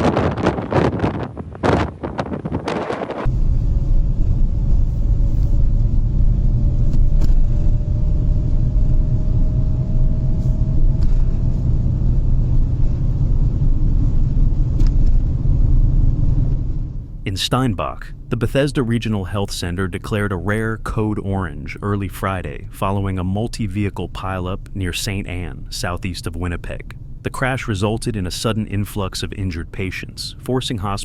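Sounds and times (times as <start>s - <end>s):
wind noise on microphone: 0.0s - 17.2s
car driving on road: 0.0s - 17.3s
faint rising whine: 3.0s - 20.0s.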